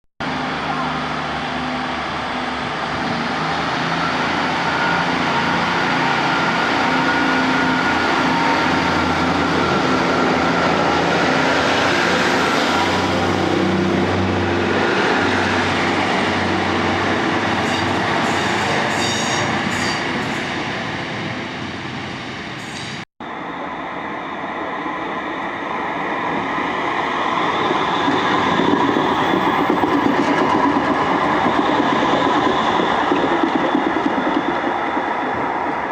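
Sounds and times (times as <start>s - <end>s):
train rumbling on rails: 0.2s - 35.9s.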